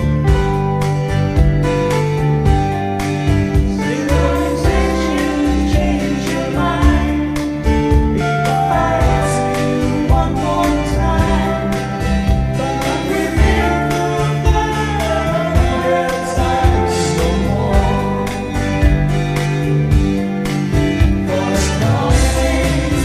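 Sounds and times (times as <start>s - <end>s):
karaoke backing track with beat: 0.0s - 23.0s
person singing: 3.7s - 19.0s, 21.2s - 23.0s.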